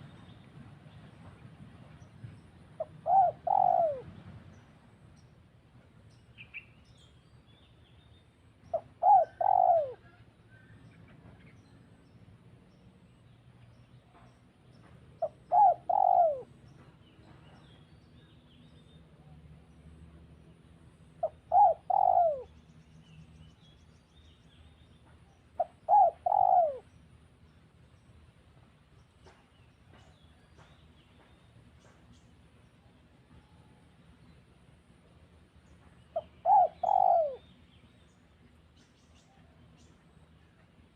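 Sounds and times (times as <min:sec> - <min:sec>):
dove cooing: 0:02.8 - 0:04.2, 0:08.7 - 0:10.2, 0:15.2 - 0:16.5, 0:21.2 - 0:22.5, 0:25.6 - 0:26.9, 0:36.1 - 0:37.4.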